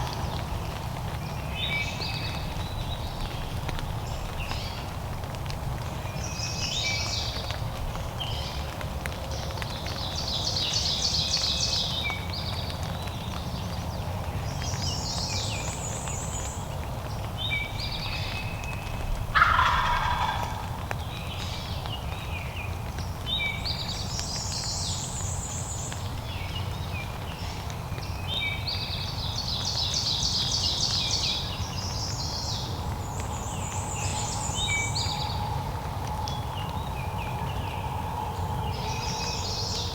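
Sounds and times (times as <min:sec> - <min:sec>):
turkey gobbling: 0:19.3 - 0:20.8.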